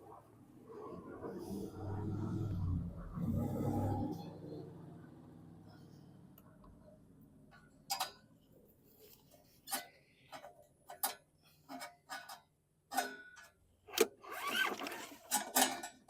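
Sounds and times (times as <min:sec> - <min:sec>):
metal tools clicking and knocking: 0:07.5 - 0:08.3, 0:09.6 - 0:13.6, 0:15.2 - 0:16.0.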